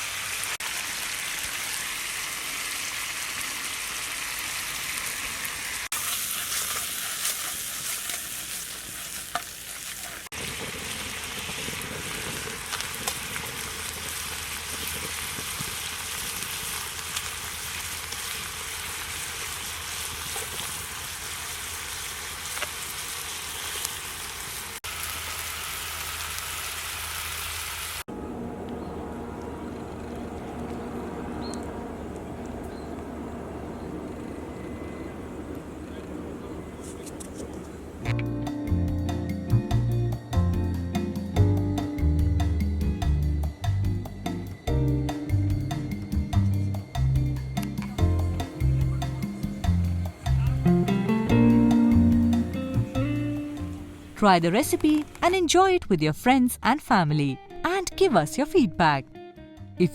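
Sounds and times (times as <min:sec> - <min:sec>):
prawns sizzling in a pan: 0:00.0 - 0:28.1
low hum: 0:28.1 - 0:36.5.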